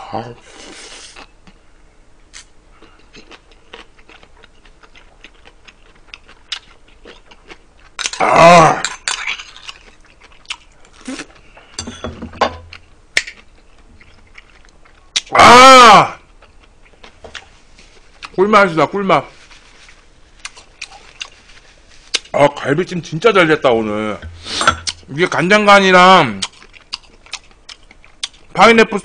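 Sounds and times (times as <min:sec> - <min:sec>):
chewing and lip-smacking: 0:02.8 - 0:08.2, 0:09.0 - 0:11.6, 0:12.7 - 0:15.3, 0:20.4 - 0:21.4, 0:26.4 - 0:28.5
person exclaiming ah: 0:08.2 - 0:08.8, 0:15.3 - 0:16.2.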